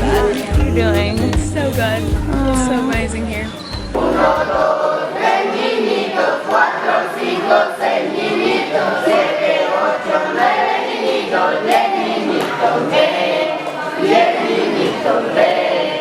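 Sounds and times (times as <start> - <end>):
group of voices singing: 0.0 - 16.0.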